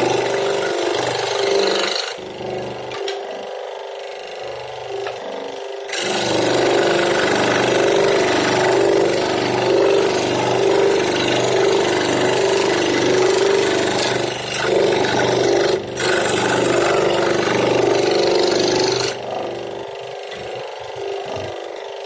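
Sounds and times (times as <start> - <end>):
power tool cutting wood: 0.0 - 22.0.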